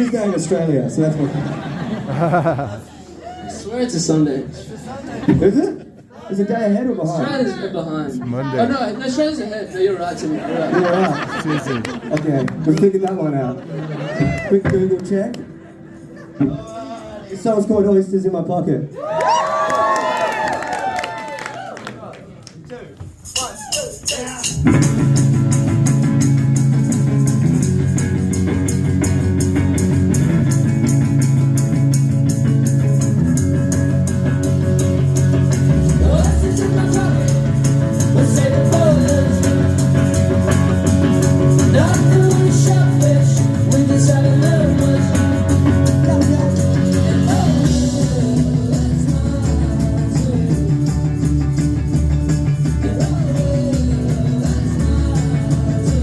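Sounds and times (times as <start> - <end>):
live rock band playing: 23.4 - 56.0
person singing: 35.7 - 40.6, 41.5 - 56.0.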